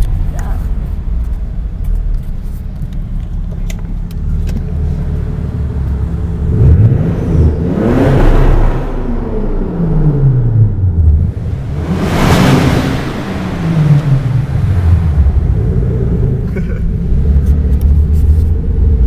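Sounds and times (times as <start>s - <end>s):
car engine rumbling: 0.0s - 19.0s
car accelerating past: 6.4s - 16.4s.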